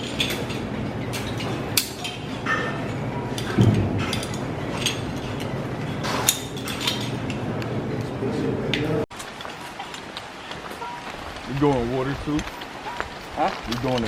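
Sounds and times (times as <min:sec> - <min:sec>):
heavy metal knock: 0:03.5 - 0:04.5.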